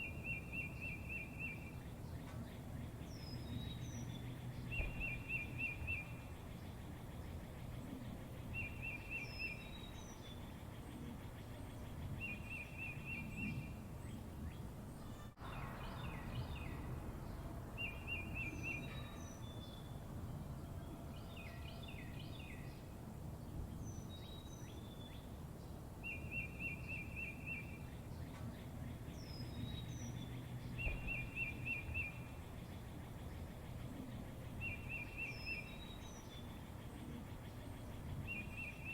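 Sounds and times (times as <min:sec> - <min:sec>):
birds chirping: 0:00.0 - 0:38.9
low outdoor rumble: 0:01.3 - 0:26.1.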